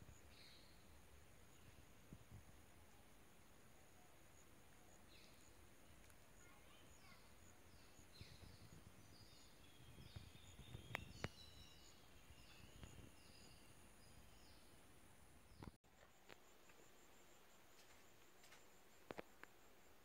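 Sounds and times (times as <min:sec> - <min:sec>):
steady high hiss: 0:00.0 - 0:20.0
bird chirping: 0:04.9 - 0:15.8.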